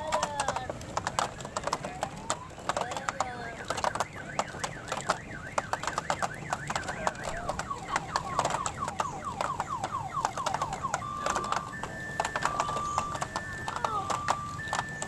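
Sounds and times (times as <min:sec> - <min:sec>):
sharp clicks: 0:00.1 - 0:15.0
electronic siren-like warble: 0:05.2 - 0:15.0.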